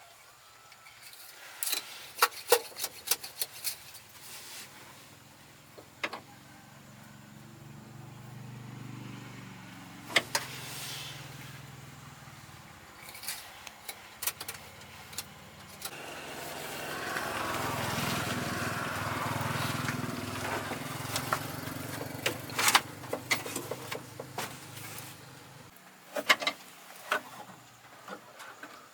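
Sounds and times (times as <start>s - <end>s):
engine humming: 4.9s - 25.8s.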